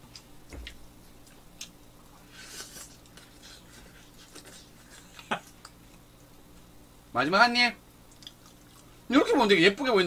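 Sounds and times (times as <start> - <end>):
person chewing toast: 0.0 - 6.3, 8.1 - 9.0.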